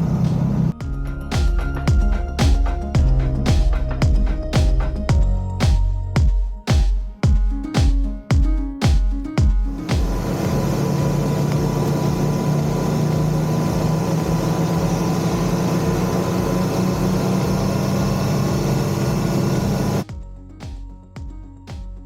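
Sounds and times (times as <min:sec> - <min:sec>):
wind and road noise: 0:00.0 - 0:05.1, 0:09.8 - 0:20.1
motorcycle engine running: 0:09.9 - 0:20.1.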